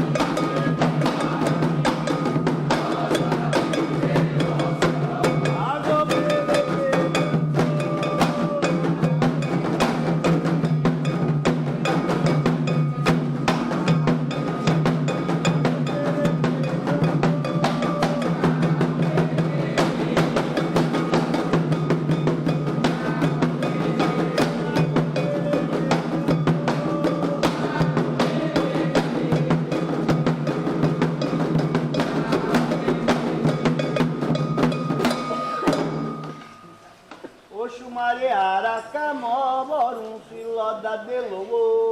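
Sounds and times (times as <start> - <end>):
struck bell ringing: 0.0 - 19.1, 20.6 - 27.5, 32.8 - 37.1
hand drums playing: 0.0 - 37.3.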